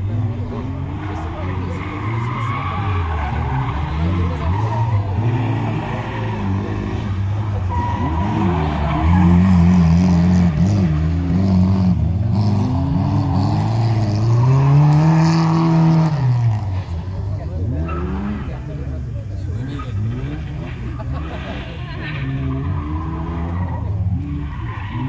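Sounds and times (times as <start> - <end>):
car engine revving: 0.0 - 25.0
tyres squealing: 0.7 - 9.9.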